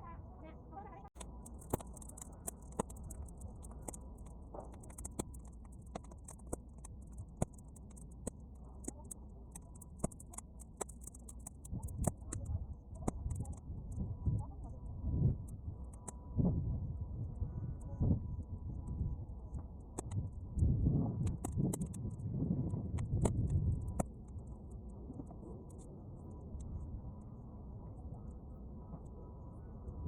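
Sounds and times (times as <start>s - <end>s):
fire pops and snaps: 1.2s - 14.6s, 15.3s - 16.2s, 19.8s - 24.6s
bonfire crackling: 1.2s - 14.7s, 18.8s - 26.8s
wind buffeting microphone: 11.6s - 27.3s.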